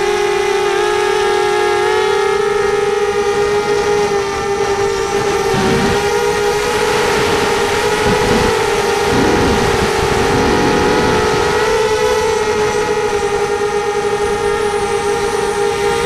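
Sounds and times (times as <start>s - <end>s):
drone motors whining: 0.0s - 16.0s
rough rumble: 5.2s - 13.1s.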